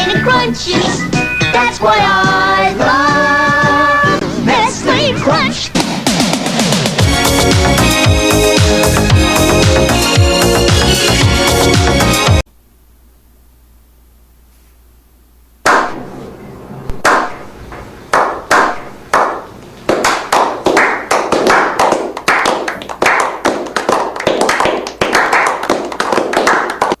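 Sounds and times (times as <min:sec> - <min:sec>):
hand claps with echo: 0:18.1 - 0:27.0.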